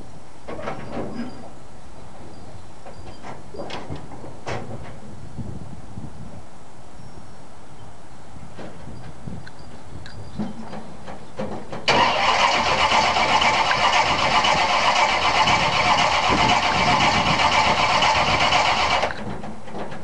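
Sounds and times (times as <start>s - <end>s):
engine running with high whine: 11.9s - 19.2s
starter cranking engine: 11.9s - 19.2s.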